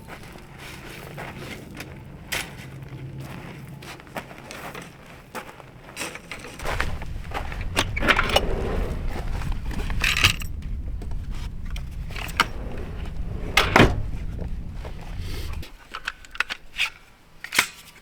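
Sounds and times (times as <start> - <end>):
low steady rumble: 6.6 - 15.8.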